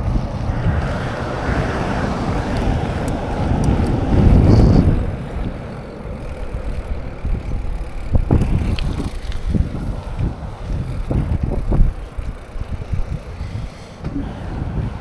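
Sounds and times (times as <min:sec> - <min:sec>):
bike tyres rumbling on rough ground: 0:00.0 - 0:15.0
wind buffeting microphone: 0:00.0 - 0:15.0.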